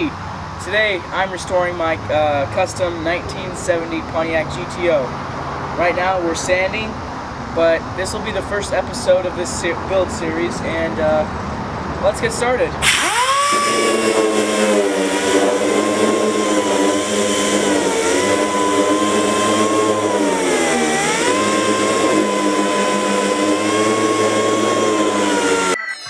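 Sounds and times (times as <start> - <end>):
power sander whining: 12.8 - 25.8.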